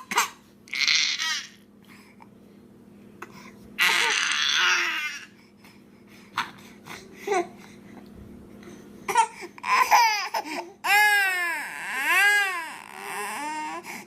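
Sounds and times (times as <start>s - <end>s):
baby squealing: 3.8s - 5.3s
baby fussing and crying: 3.8s - 5.4s, 9.1s - 14.0s.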